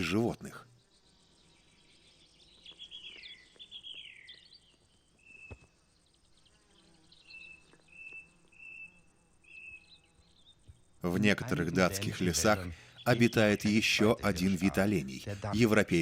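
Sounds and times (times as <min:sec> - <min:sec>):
faint birdsong: 0:00.0 - 0:16.0.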